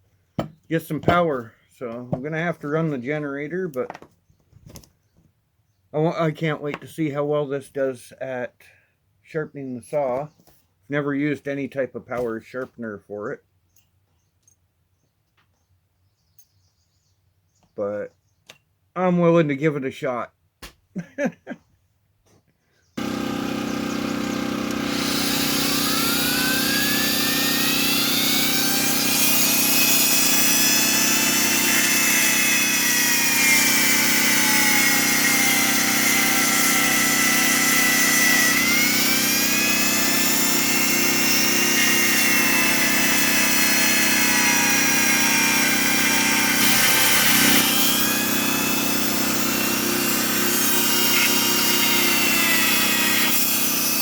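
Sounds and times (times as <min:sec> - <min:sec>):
rotary tool grinding whine: 0:23.0 - 0:54.0.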